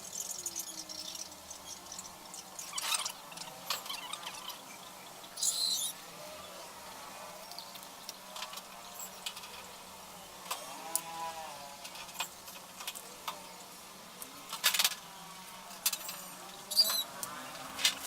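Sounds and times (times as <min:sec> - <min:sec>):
short squeak: 0:16.7 - 0:17.1.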